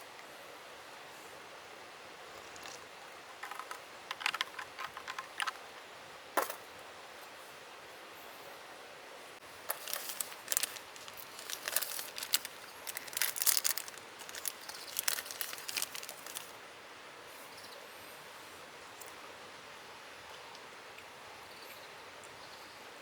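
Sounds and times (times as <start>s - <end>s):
faint outdoor background: 0.0s - 23.0s
crinkling and crackling: 2.4s - 5.8s, 9.6s - 16.6s.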